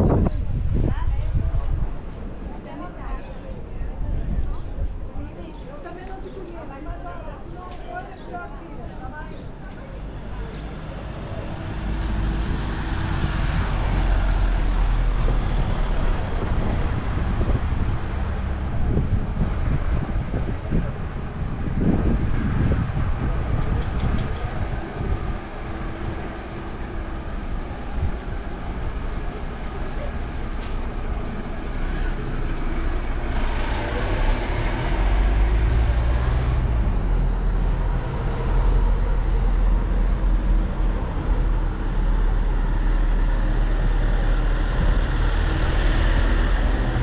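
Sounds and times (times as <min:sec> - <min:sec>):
voices of passers-by: 0:00.0 - 0:47.0
heavy low rumble: 0:10.0 - 0:47.0
vehicle running close by: 0:10.0 - 0:47.0.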